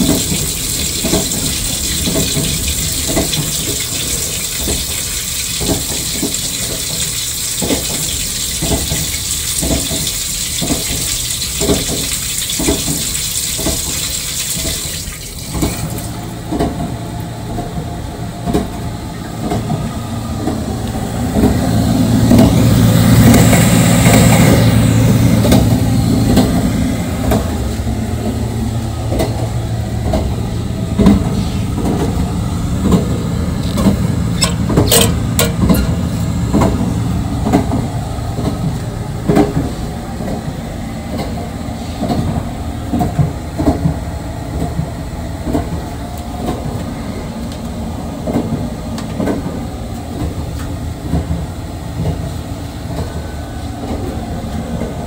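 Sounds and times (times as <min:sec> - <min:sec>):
wheels clacking over rail joints: 0:00.0 - 0:13.8, 0:31.0 - 0:41.4
train rumble and hum: 0:00.0 - 0:55.0.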